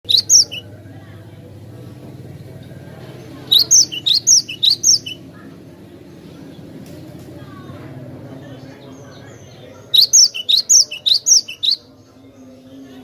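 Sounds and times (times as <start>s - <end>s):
bird call: 0.1s - 0.6s, 3.5s - 5.2s, 9.9s - 11.9s.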